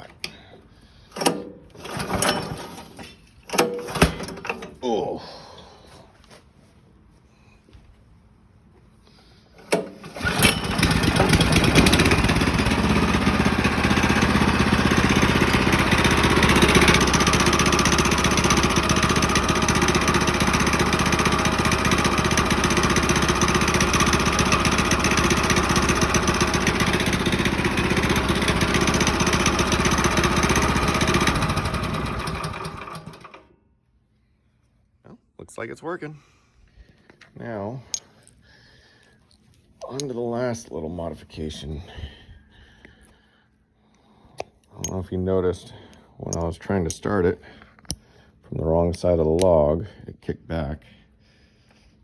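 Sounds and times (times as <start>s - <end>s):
small gas engine running: 0.0s - 4.7s, 9.6s - 33.5s
pull starter: 0.0s - 4.8s, 9.6s - 33.5s.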